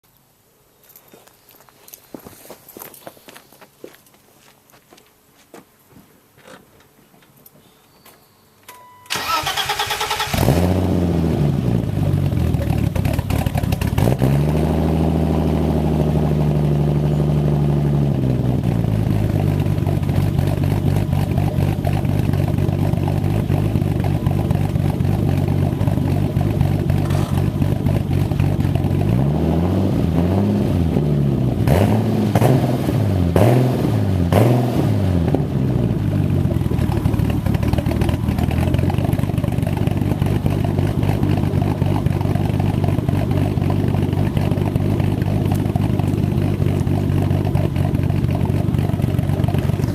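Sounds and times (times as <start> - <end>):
car engine starting: 9.0 - 49.9
car engine idling: 9.1 - 30.2, 35.2 - 49.9
car engine revving: 9.1 - 49.9.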